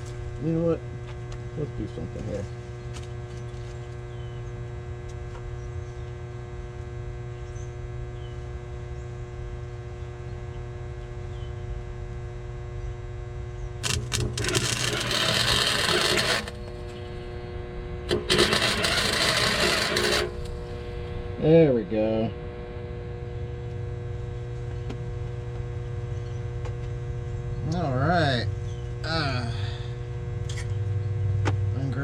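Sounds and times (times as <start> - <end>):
welding arc crackle: 13.8 - 17.0, 18.1 - 21.0
welder humming: 13.8 - 26.2.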